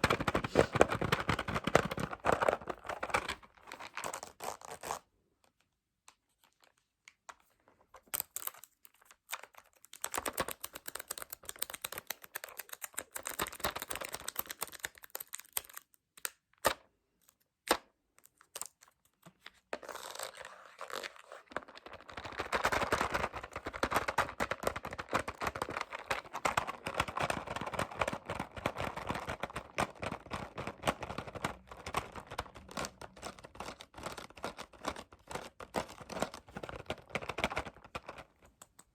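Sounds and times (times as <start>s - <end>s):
rapid tapping on objects: 0.0s - 3.2s, 22.4s - 38.2s.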